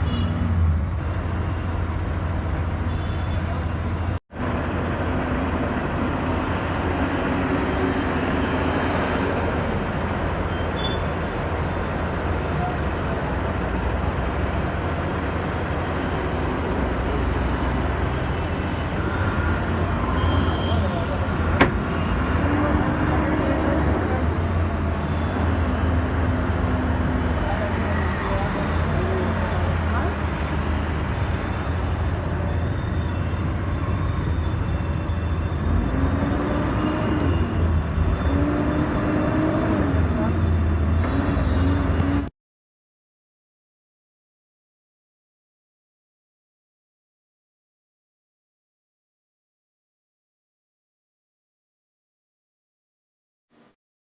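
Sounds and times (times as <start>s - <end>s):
bus engine rumble: 0.0s - 42.3s
road noise: 0.0s - 42.3s.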